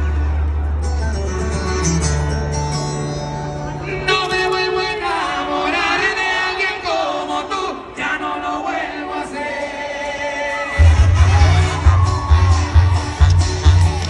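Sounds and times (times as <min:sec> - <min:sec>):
music: 0:00.0 - 0:04.9, 0:09.6 - 0:14.0
men singing together: 0:04.3 - 0:11.0.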